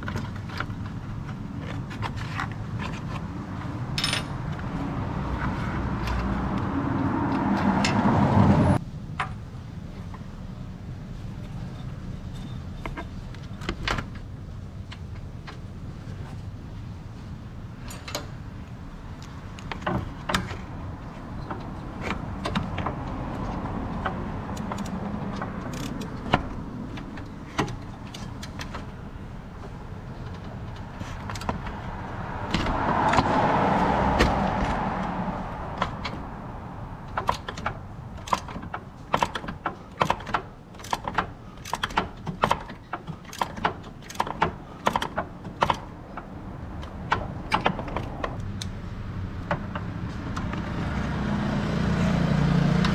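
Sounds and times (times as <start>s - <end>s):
hand tools clicking on metal: 19.2s - 31.9s, 37.0s - 48.8s.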